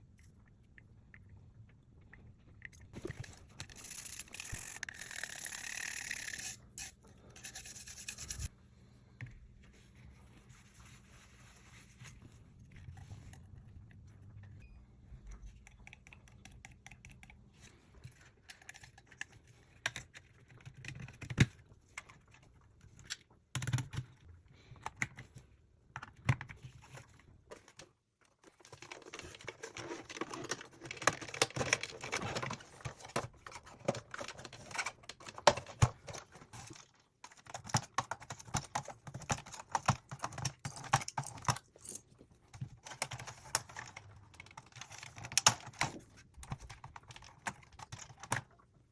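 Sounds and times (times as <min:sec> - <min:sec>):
small hard parts clicking: 0:03.2 - 0:08.5.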